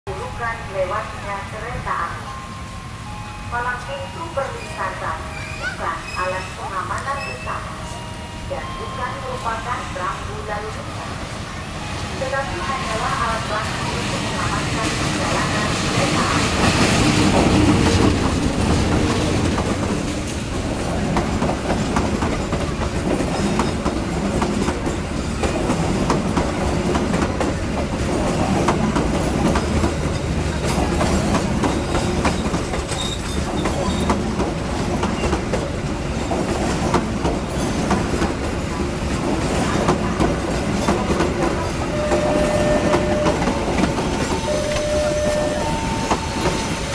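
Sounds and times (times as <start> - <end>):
train wheels clicking over rail joints: 16.0 - 45.0
brief high-pitched tone: 41.9 - 46.9.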